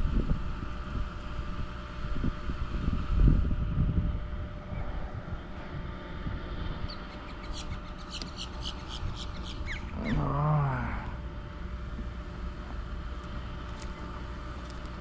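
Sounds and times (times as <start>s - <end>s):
bird chirping: 6.9s - 10.2s
bird wavering call: 6.9s - 11.0s.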